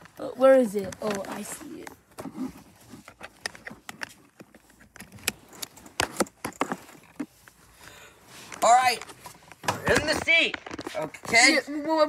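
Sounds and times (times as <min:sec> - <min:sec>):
seatbelt clicking and buckling: 0:03.0 - 0:07.2.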